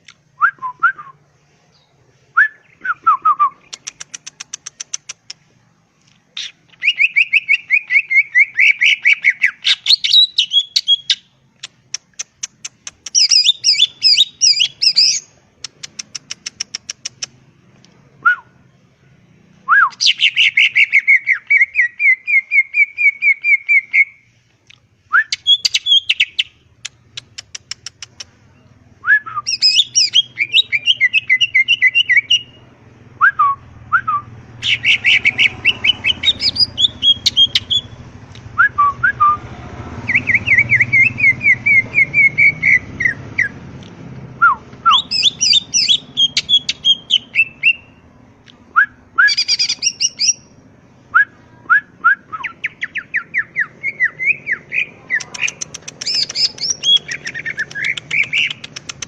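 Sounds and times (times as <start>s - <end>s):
bird singing chirps and trills: 6.4s - 11.3s, 13.0s - 17.3s, 19.8s - 24.2s, 25.3s - 32.7s, 34.6s - 38.1s, 40.0s - 43.6s, 44.8s - 48.0s, 49.3s - 50.6s, 52.4s - 59.0s.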